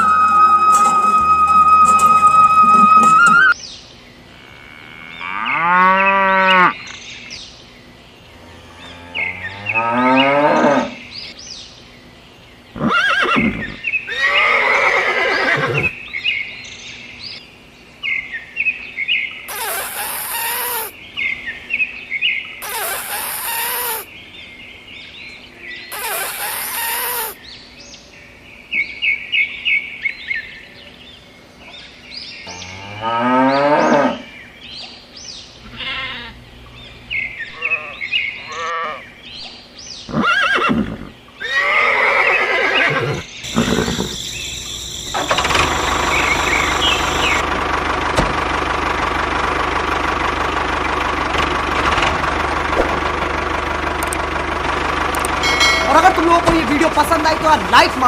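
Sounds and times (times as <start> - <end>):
engine running: 0.0 - 3.6, 43.4 - 58.0
animal calls and chirps: 8.2 - 11.5, 18.2 - 28.1, 28.8 - 47.4.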